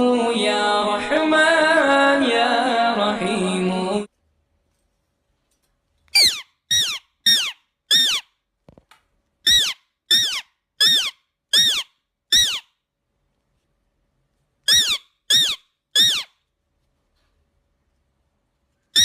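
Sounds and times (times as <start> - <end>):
parrot high calls: 6.1 - 8.4, 9.4 - 12.8, 14.7 - 16.4.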